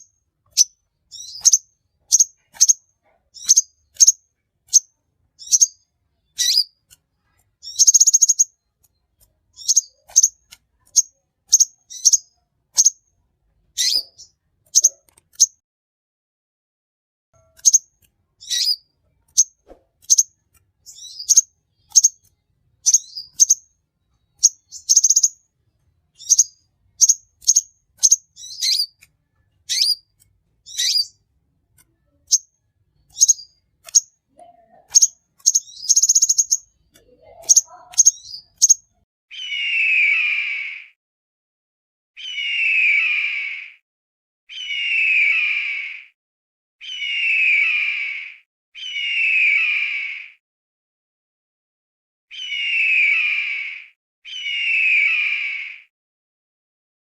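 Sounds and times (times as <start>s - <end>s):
bird chirping: 0.0s - 13.1s, 13.7s - 15.6s, 17.4s - 40.8s
harsh lower bird call: 39.3s - 41.0s, 42.2s - 43.8s, 44.5s - 46.2s, 46.8s - 50.4s, 52.3s - 55.9s.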